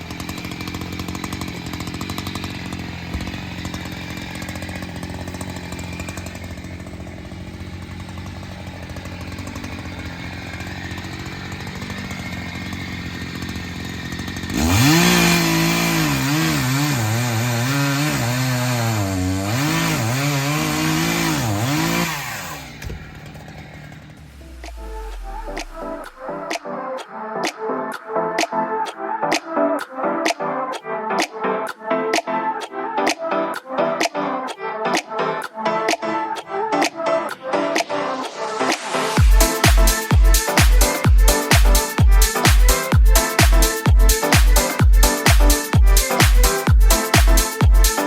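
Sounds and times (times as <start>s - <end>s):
chainsaw engine cutting wood: 0.0s - 48.0s.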